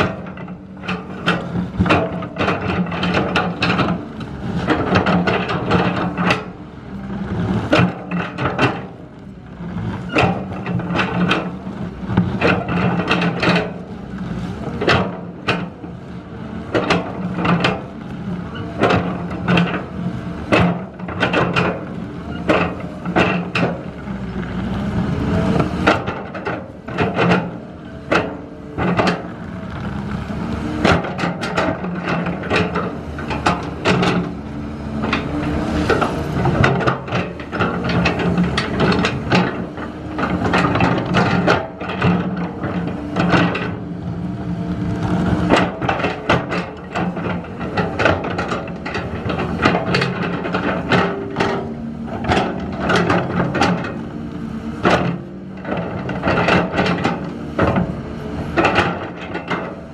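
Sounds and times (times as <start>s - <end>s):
construction machine engine running: 0.0s - 59.9s
knocks and clanks: 18.8s - 23.8s, 25.5s - 29.9s, 30.8s - 34.4s, 35.0s - 43.8s, 45.0s - 54.1s, 54.8s - 59.8s.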